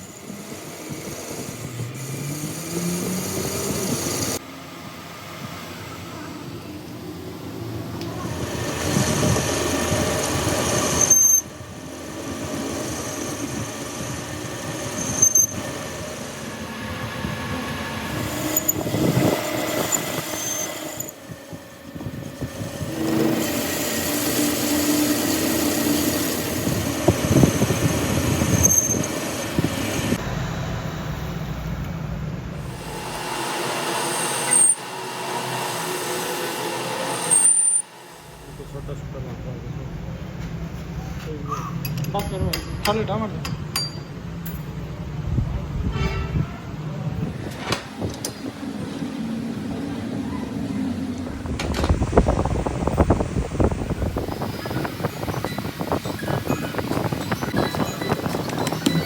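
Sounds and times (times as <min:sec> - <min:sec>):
metal squealing and ringing: 0:14.8 - 0:16.0, 0:54.1 - 0:59.0.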